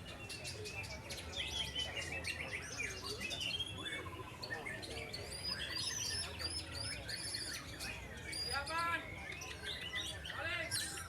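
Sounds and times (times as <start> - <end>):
birds singing: 0.0 - 11.0.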